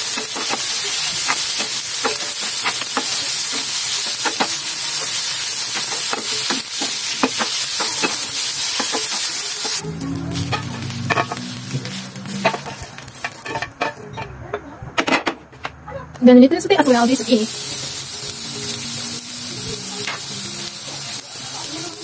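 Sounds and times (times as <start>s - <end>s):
mushrooms sizzling in a pan: 0.0s - 14.0s, 16.6s - 22.0s
spatula scraping a pan: 0.1s - 14.4s.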